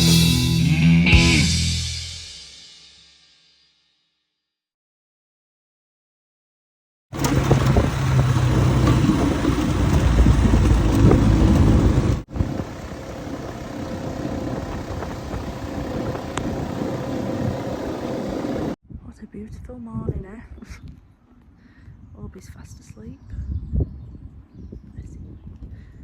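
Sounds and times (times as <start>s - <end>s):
vehicle engine running: 7.2s - 18.8s.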